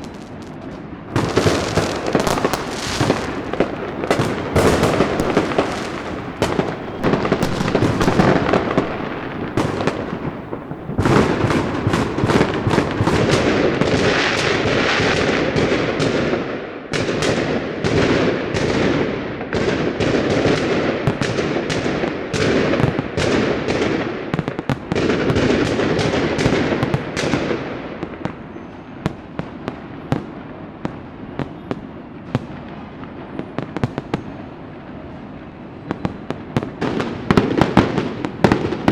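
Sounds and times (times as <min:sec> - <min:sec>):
continuous crackling: 0:00.0 - 0:14.1
fireworks and firecrackers banging: 0:00.0 - 0:38.9.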